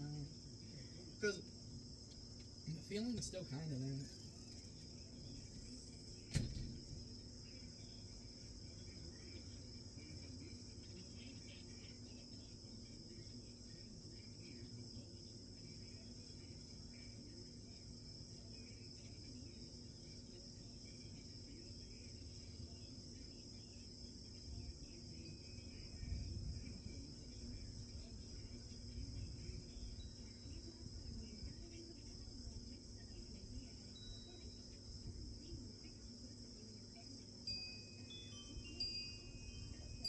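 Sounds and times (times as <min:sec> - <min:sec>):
crickets trilling: 0:00.0 - 0:40.0.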